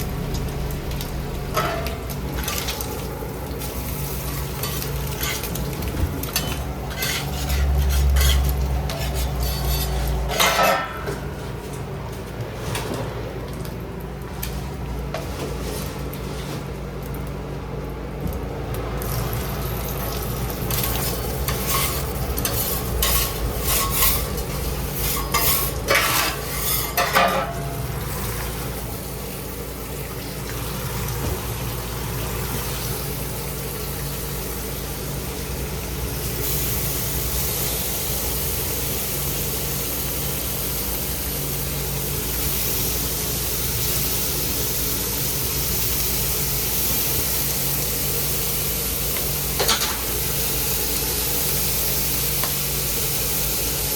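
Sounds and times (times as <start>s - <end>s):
food sizzling: 0.0s - 11.1s, 18.9s - 53.9s
metal utensil scraping: 6.4s - 11.2s, 20.8s - 27.7s.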